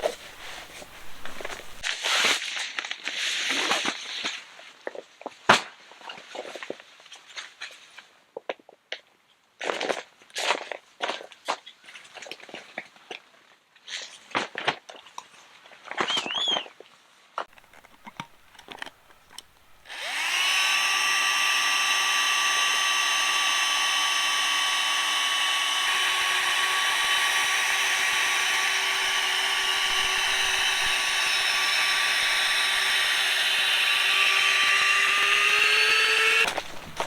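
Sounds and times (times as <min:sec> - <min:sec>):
small electric motor whining: 0:00.0 - 0:01.9, 0:17.8 - 0:37.0.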